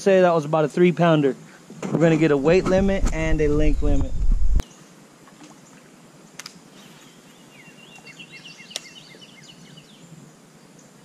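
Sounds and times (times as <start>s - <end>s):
outdoor hiss: 0.0s - 4.0s
bird chirping: 6.8s - 11.0s.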